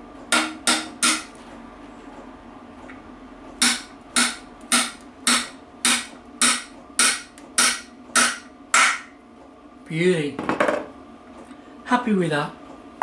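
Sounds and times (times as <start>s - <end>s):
steel hammer striking metal: 0.3s - 1.3s, 3.6s - 9.1s.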